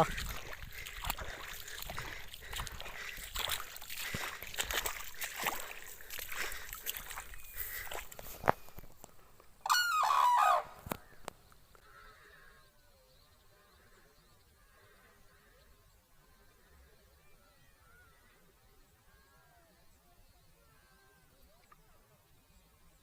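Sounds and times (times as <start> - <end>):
crane trumpeting call: 9.6 - 10.8.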